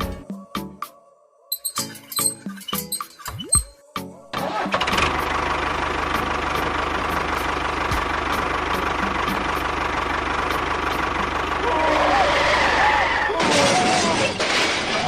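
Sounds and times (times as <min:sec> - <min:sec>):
vehicle engine running: 0:04.4 - 0:13.3.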